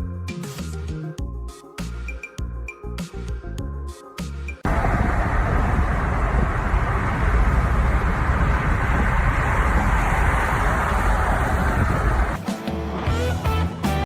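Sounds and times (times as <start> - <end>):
loud steady rumbling: 4.6 - 12.4.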